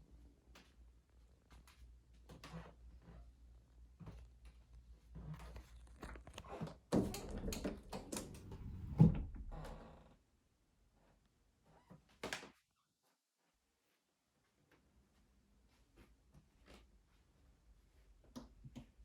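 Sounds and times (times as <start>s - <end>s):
knocks clicks and thuds: 7.0s - 9.8s.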